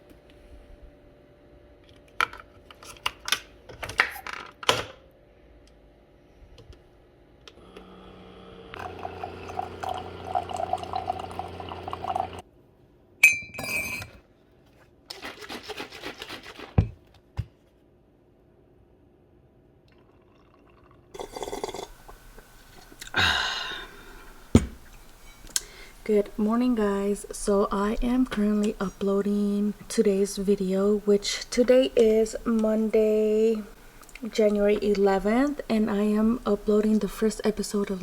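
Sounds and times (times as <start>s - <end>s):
small appliance humming: 5.6s - 12.4s, 21.2s - 27.5s
dishes and glassware clinking: 13.2s - 14.2s.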